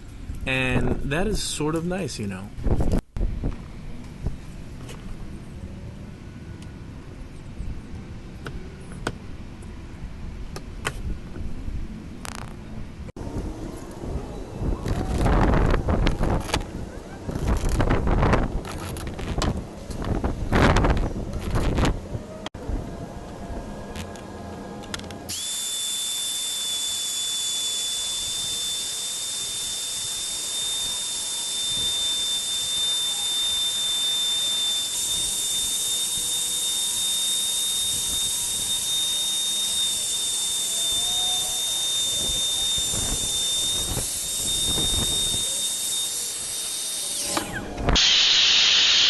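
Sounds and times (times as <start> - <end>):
wood router whining: 24.1 - 49.0.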